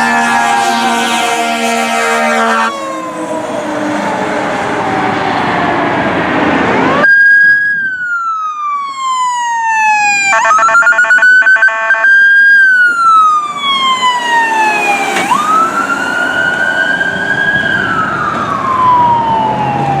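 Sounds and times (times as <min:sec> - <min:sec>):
traffic noise: 0:00.0 - 0:20.0
electronic siren wailing: 0:06.6 - 0:20.0.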